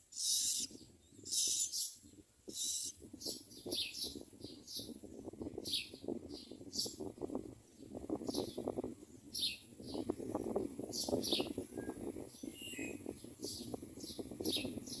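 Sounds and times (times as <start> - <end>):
nestlings chirping: 0.1 - 4.9.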